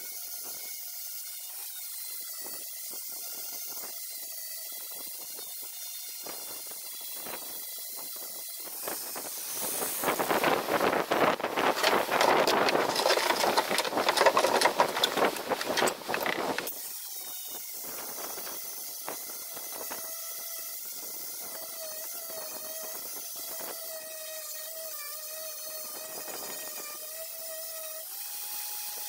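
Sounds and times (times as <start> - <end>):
harsh tool scraping: 9.2 - 16.8.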